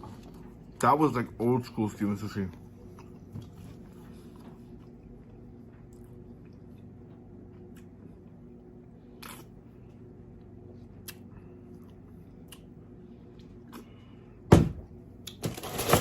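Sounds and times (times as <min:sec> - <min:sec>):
steady low hum: 0:00.0 - 0:16.0
person chewing food: 0:02.6 - 0:14.2.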